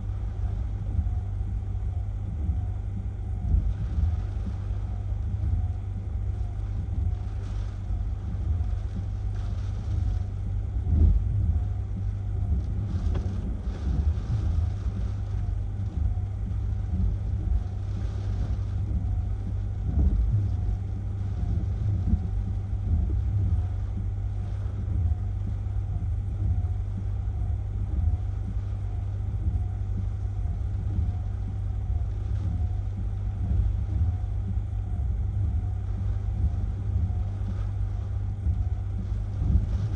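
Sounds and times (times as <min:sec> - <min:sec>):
strong wind buffeting microphone: 0:00.0 - 0:39.9.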